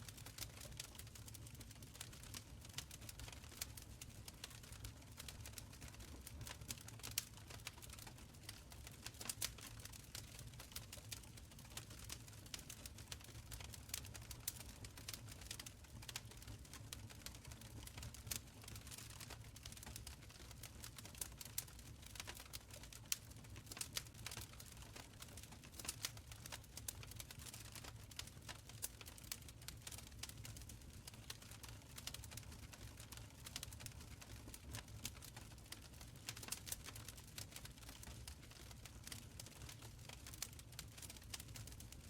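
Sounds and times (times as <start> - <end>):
low rumble of fire: 0.0 - 42.0
wood fire crackling: 0.0 - 42.0.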